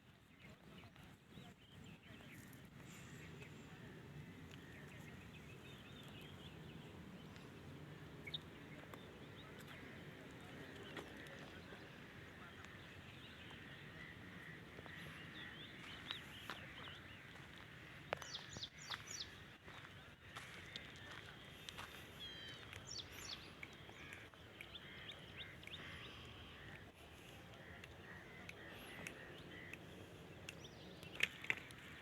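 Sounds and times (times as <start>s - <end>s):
outdoor background noise: 0.0s - 32.0s
birds chirping faintly: 0.1s - 32.0s.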